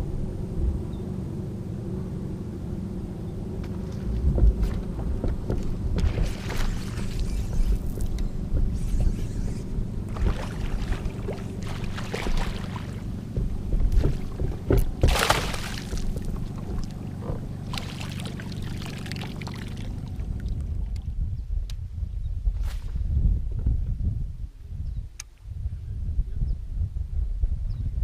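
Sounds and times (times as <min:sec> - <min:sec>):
low rumble: 0:00.0 - 0:28.0
paddle splashing water: 0:06.0 - 0:20.8.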